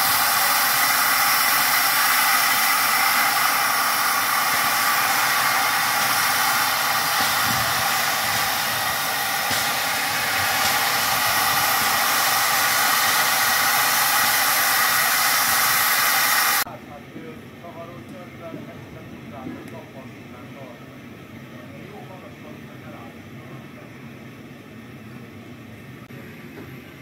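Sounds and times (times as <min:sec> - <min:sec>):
steam locomotive hissing steam: 0:00.0 - 0:16.7.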